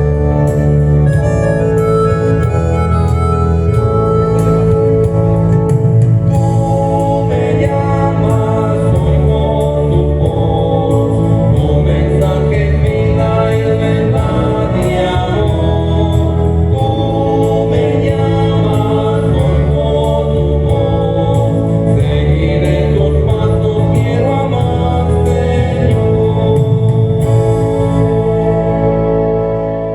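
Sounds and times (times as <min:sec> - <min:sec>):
keyboard accompaniment: 0:00.0 - 0:29.9
choir singing a hymn: 0:06.3 - 0:29.9.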